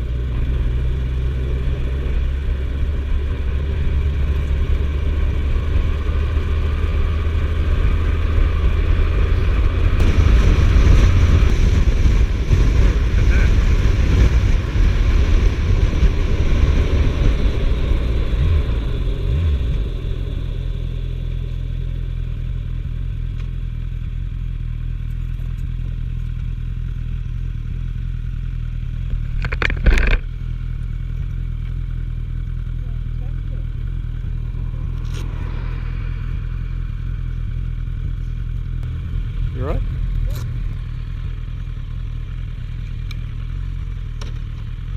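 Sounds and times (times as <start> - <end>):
motorcycle engine running: 0.0 - 44.9
wind noise: 6.9 - 20.9, 34.3 - 38.5.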